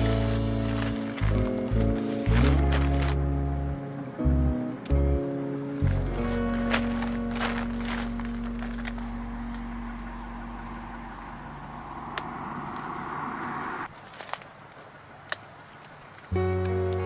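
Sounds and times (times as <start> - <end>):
background music: 0.0 - 10.6
crickets chirring: 0.0 - 17.0
rushing noise: 9.8 - 13.9.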